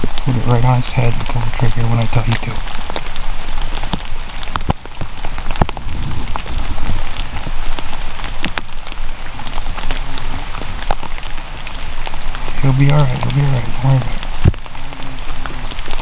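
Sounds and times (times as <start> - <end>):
rain pattering: 0.0 - 16.0
raindrops ticking close by: 0.0 - 16.0.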